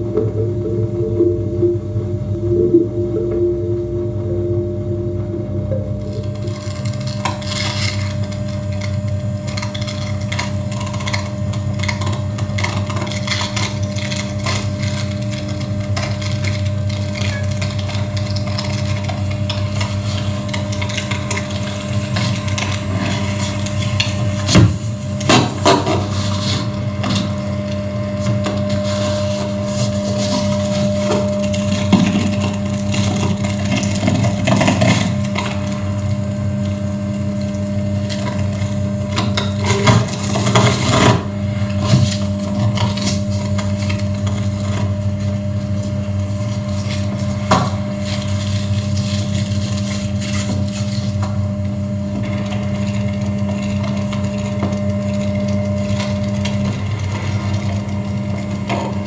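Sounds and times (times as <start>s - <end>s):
crackling scraping noise: 0.0s - 27.5s
low droning hum: 0.0s - 59.0s.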